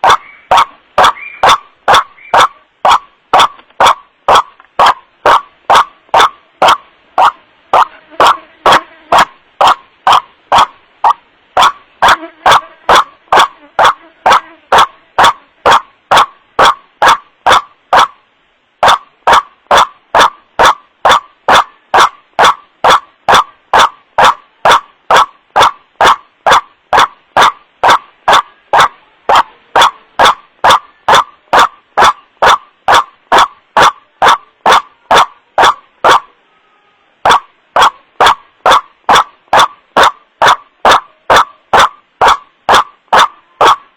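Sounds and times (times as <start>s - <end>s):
bird harsh wak calls: 0.0s - 18.2s.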